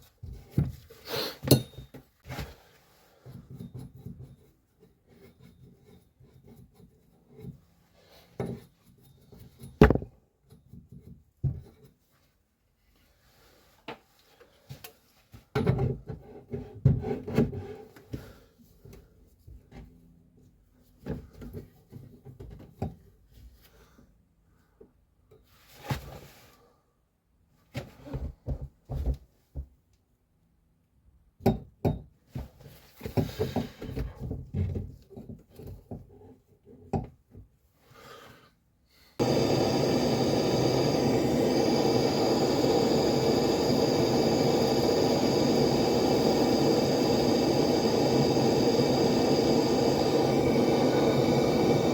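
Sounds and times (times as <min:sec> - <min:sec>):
tools knocking and tapping: 0:31.4 - 0:32.2
machine whir: 0:39.2 - 0:51.9.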